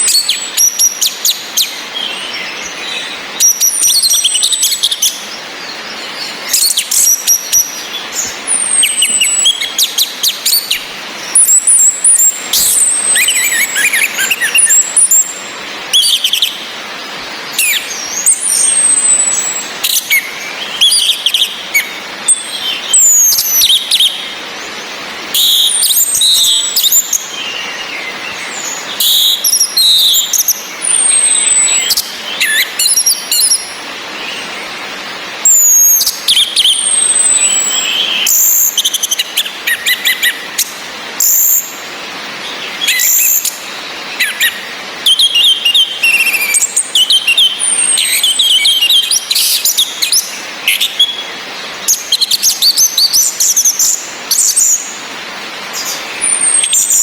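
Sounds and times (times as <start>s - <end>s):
rain hiss: 0.0s - 57.0s
high thin bird whistles: 8.5s - 15.4s.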